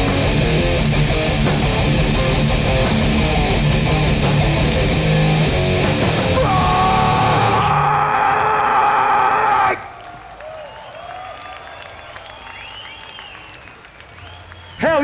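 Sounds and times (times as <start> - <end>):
punk band playing live: 0.0 - 7.9.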